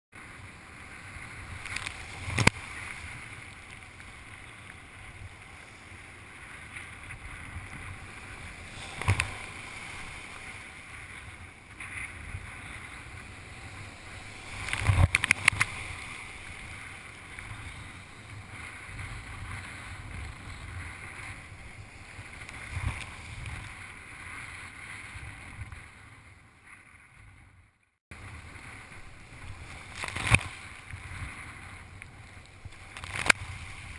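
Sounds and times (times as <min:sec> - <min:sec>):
water rushing: 0:00.5 - 0:19.6
wind on microphone: 0:00.9 - 0:33.9.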